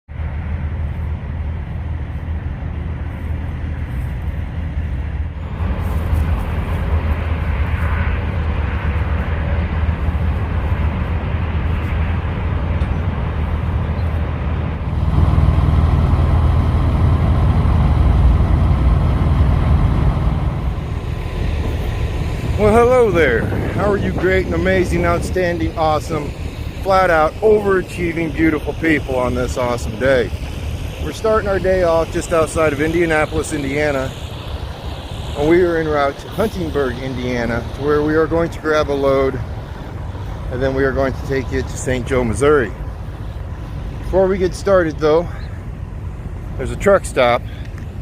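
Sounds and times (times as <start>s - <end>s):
truck engine droning: 0.1s - 48.0s.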